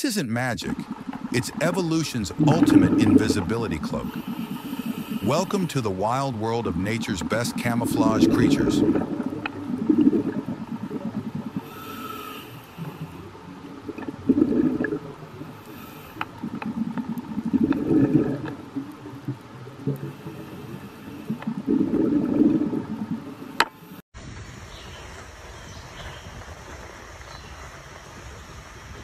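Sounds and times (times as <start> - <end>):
regulator exhale bubbles: 0.6 - 6.1, 6.7 - 18.9, 19.7 - 24.0
regulator inhale hiss: 4.1 - 5.4, 11.6 - 13.3, 15.6 - 16.3.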